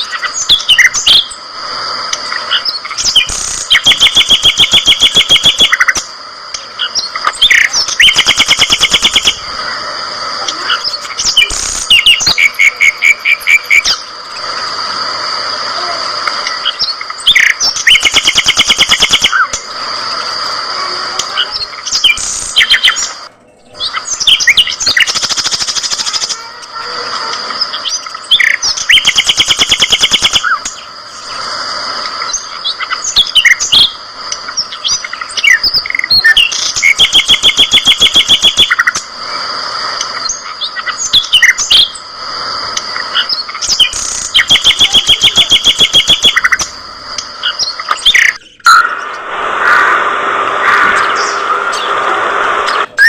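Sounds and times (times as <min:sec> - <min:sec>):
fast rattling bird trill: 0:02.2 - 0:09.5, 0:10.6 - 0:14.1, 0:16.6 - 0:19.6, 0:21.3 - 0:26.6, 0:27.5 - 0:31.4, 0:32.2 - 0:39.0, 0:40.1 - 0:42.1, 0:42.8 - 0:48.9
budgerigars chattering and chirping: 0:10.7 - 0:14.1, 0:21.3 - 0:26.3, 0:32.3 - 0:39.0, 0:43.0 - 0:46.8.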